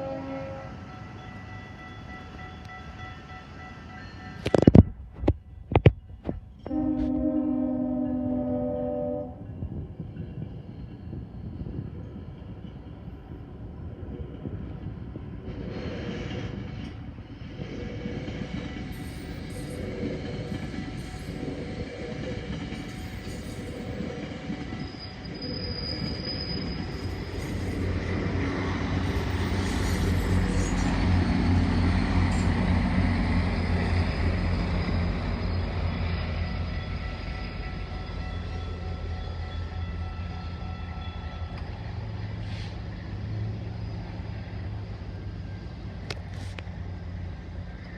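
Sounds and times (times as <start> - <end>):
diesel locomotive drone: 0.0 - 47.9
train wheels rumbling on rail: 0.0 - 47.9
high wheel squeal: 19.0 - 31.6, 33.5 - 45.8.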